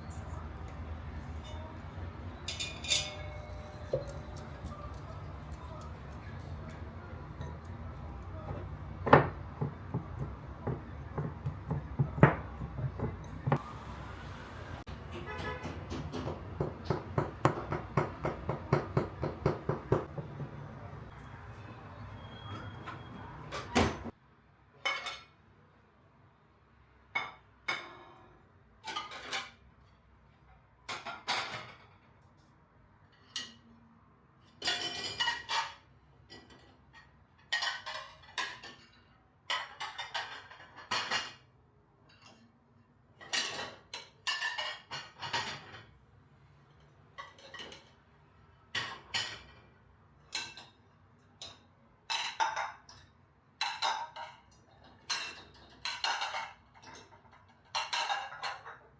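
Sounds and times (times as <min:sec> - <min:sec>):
dishes and cutlery clinking: 0:00.0 - 0:13.7, 0:24.8 - 0:25.4, 0:27.1 - 0:30.0, 0:30.9 - 0:32.3, 0:33.1 - 0:33.8, 0:34.4 - 0:46.0, 0:46.7 - 0:48.0, 0:48.8 - 0:58.9.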